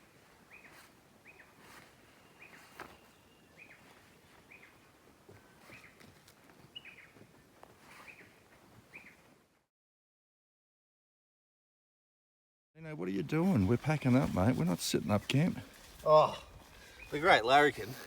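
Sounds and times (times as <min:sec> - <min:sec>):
bird chirping: 0:00.5 - 0:04.9, 0:05.7 - 0:07.2, 0:08.0 - 0:09.2, 0:16.8 - 0:18.0.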